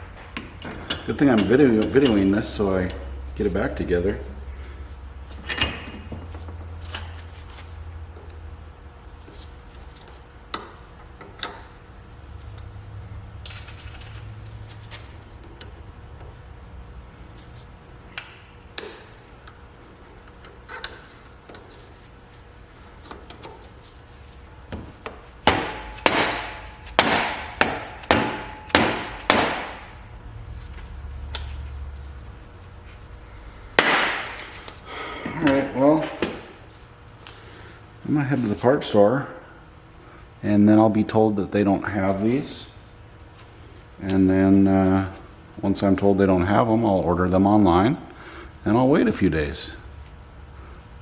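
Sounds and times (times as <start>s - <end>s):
hammer striking metal: 25.4s - 30.0s, 33.8s - 34.5s.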